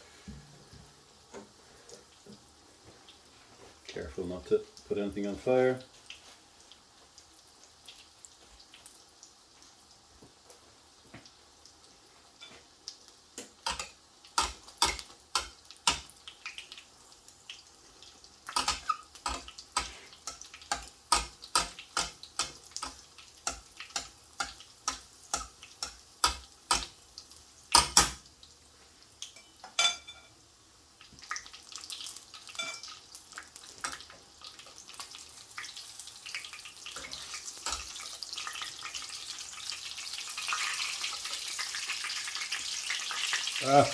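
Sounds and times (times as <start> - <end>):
utensils tapping on dishes: 13.6 - 16.1, 18.5 - 26.9, 27.7 - 28.2.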